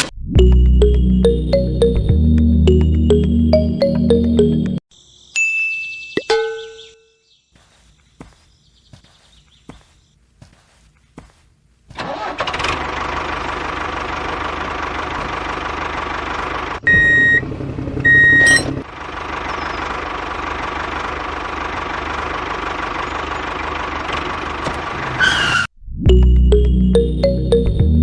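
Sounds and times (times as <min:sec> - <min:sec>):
music: 0:00.3 - 0:04.8, 0:26.0 - 0:28.0
tractor engine running: 0:12.0 - 0:25.2.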